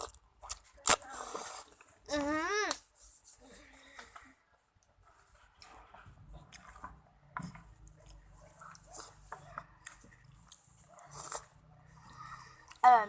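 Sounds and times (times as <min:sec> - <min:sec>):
person chewing food: 0:00.0 - 0:01.9, 0:05.4 - 0:12.9.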